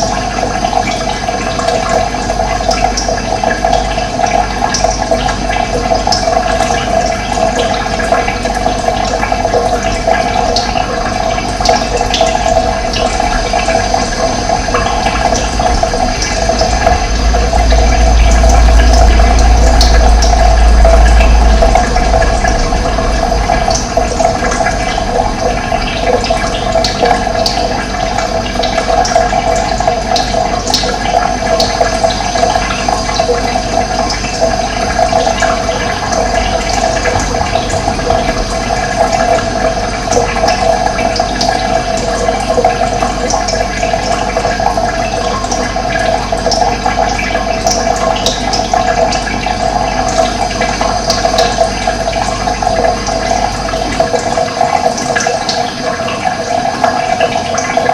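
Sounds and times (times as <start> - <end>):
running water: 0.0 - 57.9.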